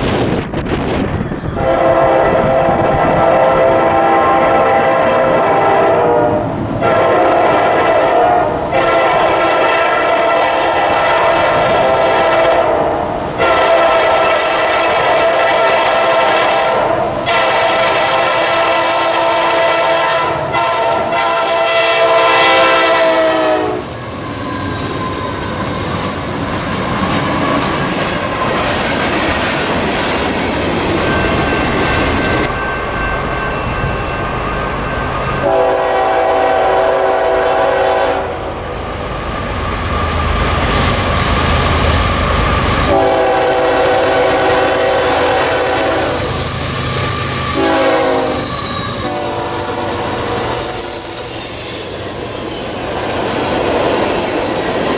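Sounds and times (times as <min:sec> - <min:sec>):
passing train rumble and rail clatter: 0:00.0 - 0:54.9
train horn blasts: 0:01.5 - 0:24.0, 0:31.1 - 0:38.8, 0:42.7 - 0:51.9.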